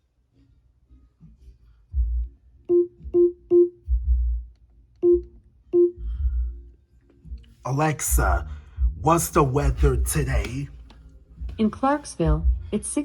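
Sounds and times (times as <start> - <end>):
dull low thumps: 3.9 - 4.4, 7.7 - 10.8, 11.4 - 12.8.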